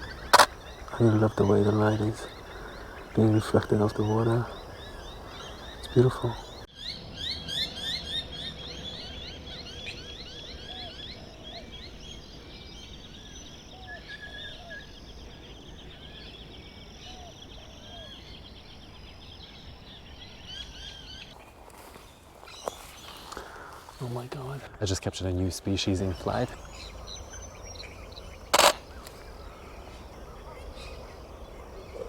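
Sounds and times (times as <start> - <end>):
deep bird call notes: 0.0 - 11.5, 22.4 - 32.0
birds chirping rapidly: 0.0 - 32.0
steady low rumble: 25.5 - 32.0.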